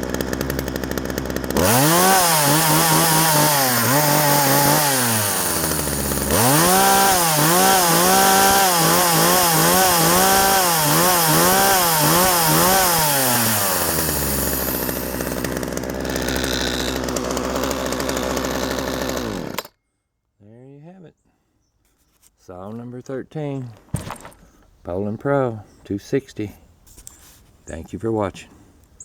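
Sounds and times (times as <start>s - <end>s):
chainsaw engine revving and idling: 0.0s - 19.7s.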